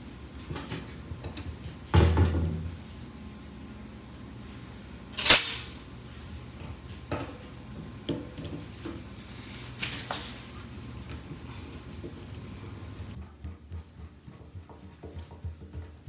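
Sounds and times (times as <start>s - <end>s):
metallic clank with ring: 5.2s - 5.9s.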